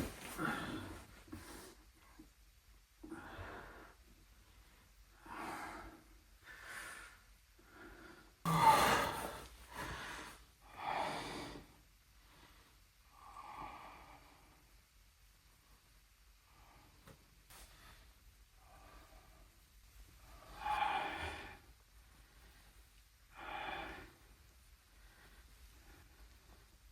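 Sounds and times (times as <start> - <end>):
person breathing heavily: 3.0 - 14.6, 20.2 - 26.8.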